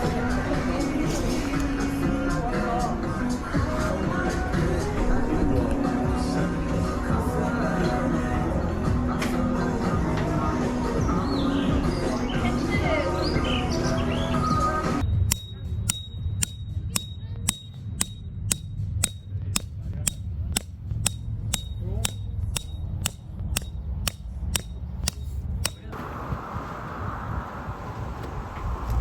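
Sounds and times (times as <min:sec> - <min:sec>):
steady low rumble: 0:15.0 - 0:29.0
sharp regular clicking: 0:15.1 - 0:25.9.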